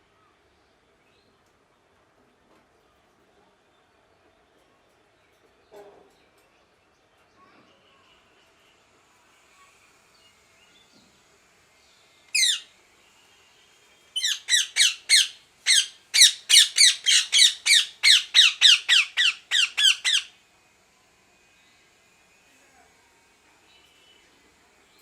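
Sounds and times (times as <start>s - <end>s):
parakeet squawking: 12.4s - 12.7s, 14.2s - 20.3s.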